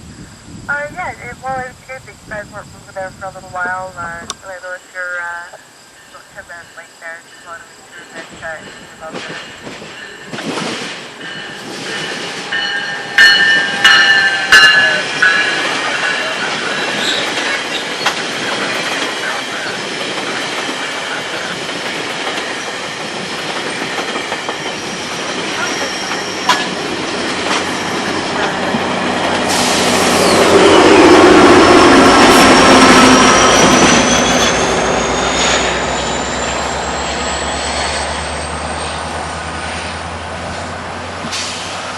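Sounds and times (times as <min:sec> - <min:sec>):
train wheels rumbling on rail: 0:05.9 - 0:41.9
high wheel squeal: 0:11.3 - 0:18.2, 0:24.5 - 0:26.8, 0:29.5 - 0:40.0.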